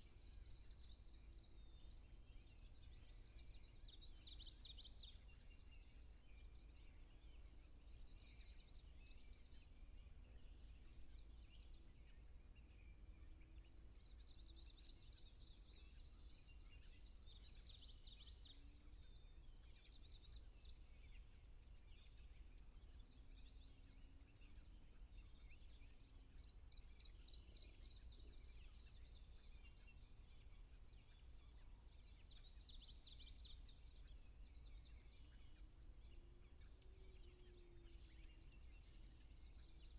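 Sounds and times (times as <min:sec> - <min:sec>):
songbird trills: 0:00.0 - 0:39.9.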